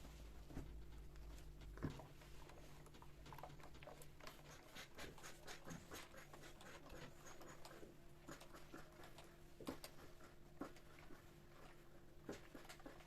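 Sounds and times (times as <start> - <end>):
light taps and clicks of objects: 0.0 - 4.6.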